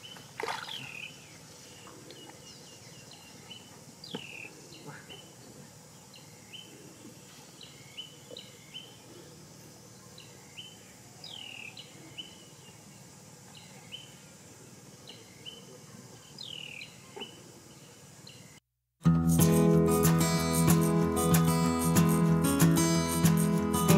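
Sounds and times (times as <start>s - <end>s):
birds chirping: 0.0s - 18.6s
faint outdoor background noise: 0.0s - 23.9s.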